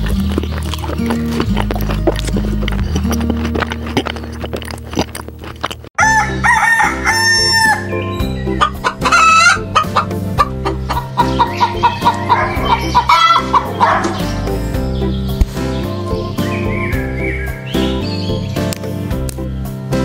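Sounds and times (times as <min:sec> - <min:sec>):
chickens clucking: 0:00.0 - 0:18.8
background music: 0:00.0 - 0:20.0
rooster crowing: 0:06.0 - 0:07.9.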